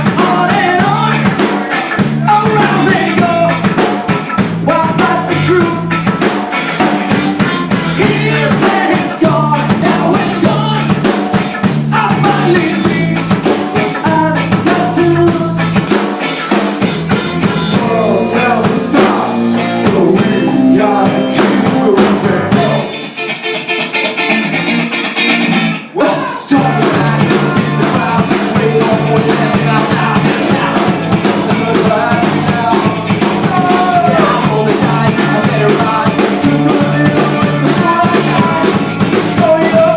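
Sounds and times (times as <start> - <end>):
person singing: 0.0 - 3.8, 4.6 - 5.9, 7.9 - 11.1, 11.9 - 15.7, 17.7 - 23.2, 25.8 - 39.9
rock band playing: 0.0 - 39.9.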